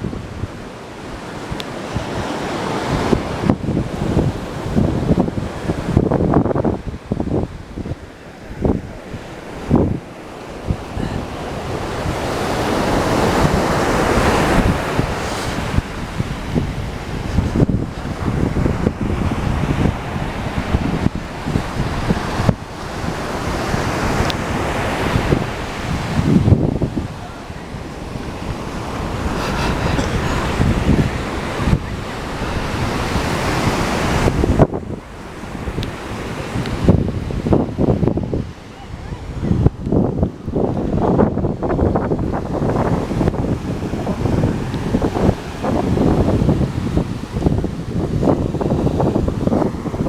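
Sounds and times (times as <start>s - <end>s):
ocean wave washing: 0.0s - 50.0s
wind buffeting microphone: 0.0s - 50.0s.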